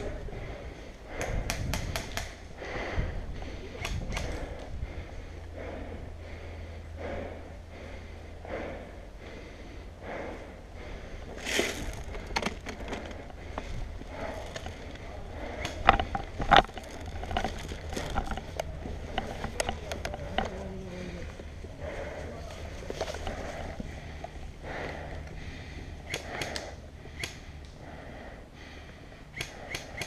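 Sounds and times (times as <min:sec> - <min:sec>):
wind rumble on microphone: 0:00.0 - 0:06.2
sharp cracks: 0:01.1 - 0:02.4, 0:15.5 - 0:20.4, 0:26.0 - 0:27.8, 0:29.4 - 0:30.0
scattered clicks: 0:01.2 - 0:02.4, 0:03.8 - 0:04.7, 0:12.1 - 0:20.6, 0:26.0 - 0:27.8, 0:29.3 - 0:30.0
rustling through brush and leaves: 0:11.3 - 0:24.6.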